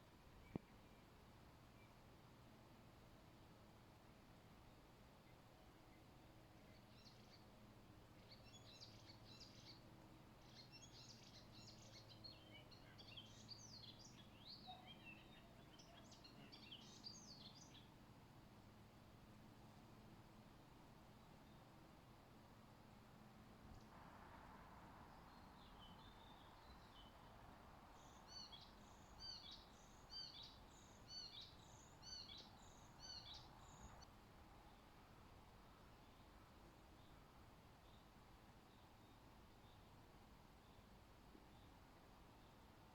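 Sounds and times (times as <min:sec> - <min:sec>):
faint low hum: 0:00.0 - 0:42.9
low steady background hiss: 0:00.0 - 0:42.9
songbird singing faintly: 0:00.0 - 0:42.9.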